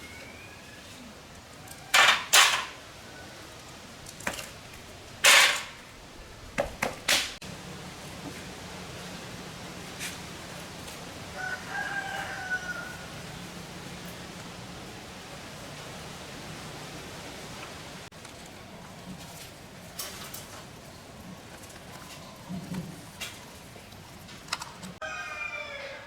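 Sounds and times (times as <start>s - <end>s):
rooster crowing faintly: 0.0s - 3.8s, 11.3s - 13.5s, 25.0s - 26.0s.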